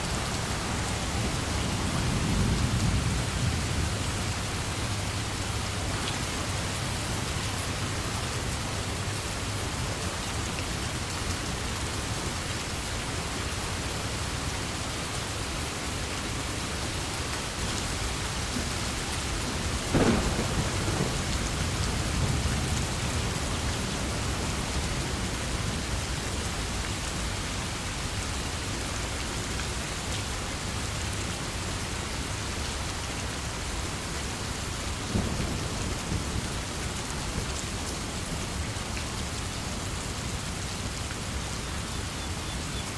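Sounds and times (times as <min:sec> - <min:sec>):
heavy rain: 0:00.0 - 0:42.9
thunderclap crack and rumble: 0:17.7 - 0:26.6.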